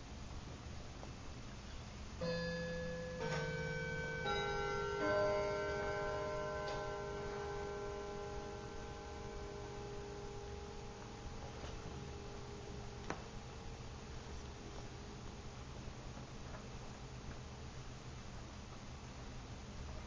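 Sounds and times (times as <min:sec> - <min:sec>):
low hum: 0:01.6 - 0:16.8
ringing musical notes: 0:02.2 - 0:13.0.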